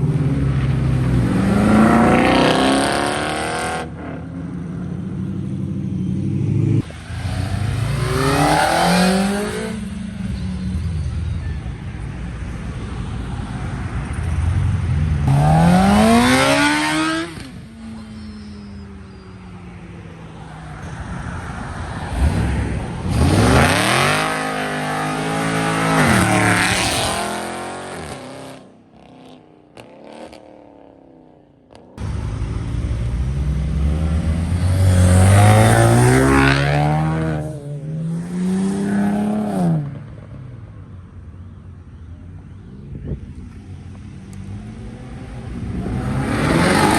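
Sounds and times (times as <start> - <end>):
car engines revving up: 0.0 - 4.9, 5.9 - 11.4, 14.1 - 19.2, 20.4 - 31.0, 32.0 - 40.5, 42.5 - 46.9.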